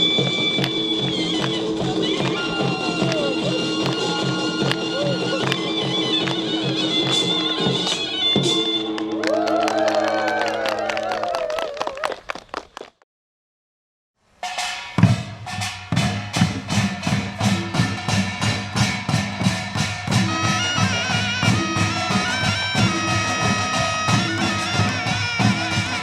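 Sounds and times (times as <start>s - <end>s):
fast folk drumming: 0.0s - 8.8s, 15.0s - 26.0s
high melody: 0.0s - 9.2s, 17.0s - 26.0s.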